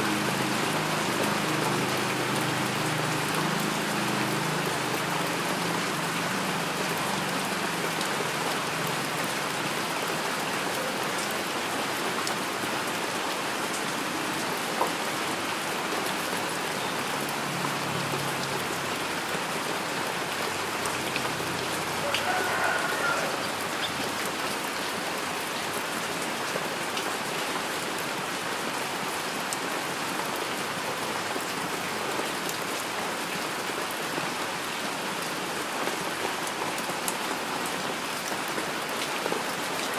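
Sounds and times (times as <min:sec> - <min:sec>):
heavy rain hissing: 0:00.0 - 0:26.9.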